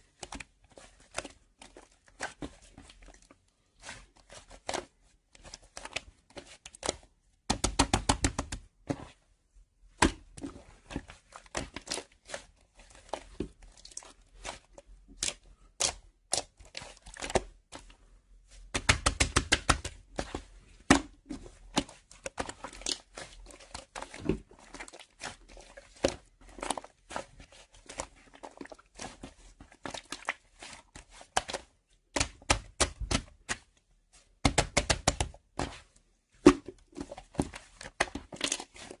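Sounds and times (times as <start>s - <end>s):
irregular tapping and clicking: 18.7s - 20.3s, 34.4s - 35.4s.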